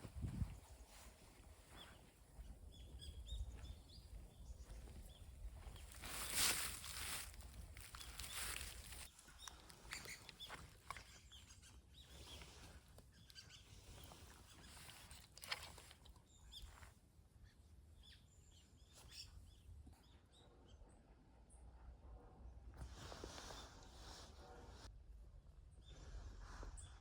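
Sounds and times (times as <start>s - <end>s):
small birds chirping: 0.1s - 20.9s.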